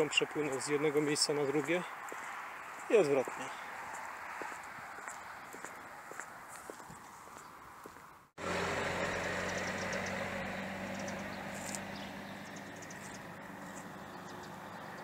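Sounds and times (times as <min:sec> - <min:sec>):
motor vehicle engine humming: 0:07.4 - 0:15.0
faint bird chirps: 0:09.1 - 0:15.0.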